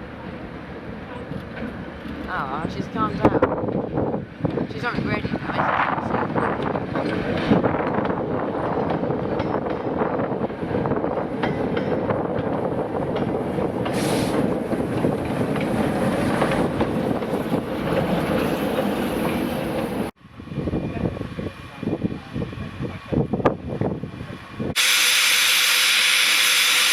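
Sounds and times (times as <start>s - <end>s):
train rail rumble: 0.0s - 26.9s
steam hiss: 13.9s - 14.5s, 24.8s - 26.9s.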